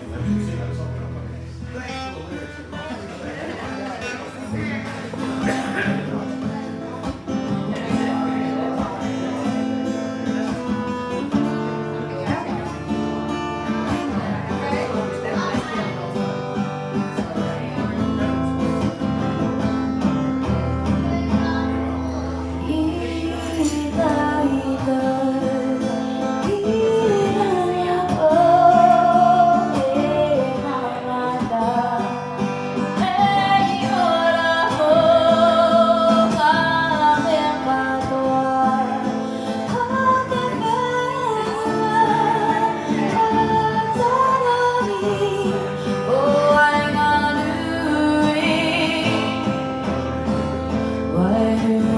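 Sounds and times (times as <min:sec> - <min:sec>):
plucked guitar: 0:00.0 - 0:51.9
woman singing: 0:20.4 - 0:51.9.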